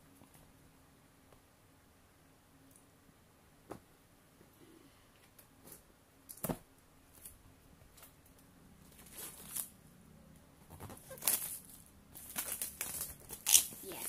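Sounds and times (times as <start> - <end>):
packaging rustling: 10.7 - 14.0.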